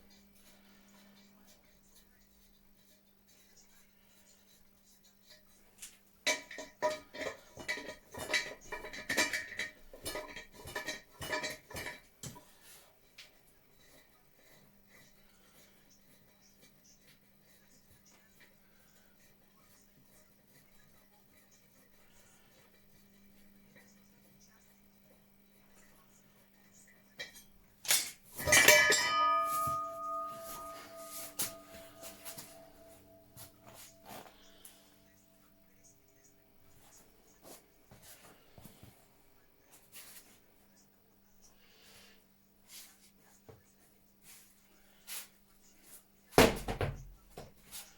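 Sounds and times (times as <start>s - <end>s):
metal tools clinking and clattering: 6.3s - 12.4s, 27.2s - 34.9s
metal object clanking and ringing: 27.9s - 34.8s.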